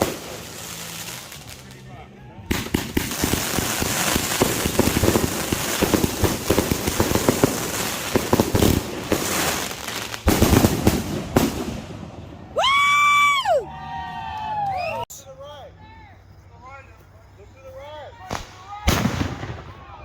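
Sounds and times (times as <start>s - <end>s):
firework bangs: 0.0s - 12.5s, 18.2s - 20.0s
fireworks crackling and popping: 0.0s - 13.0s, 18.1s - 20.0s.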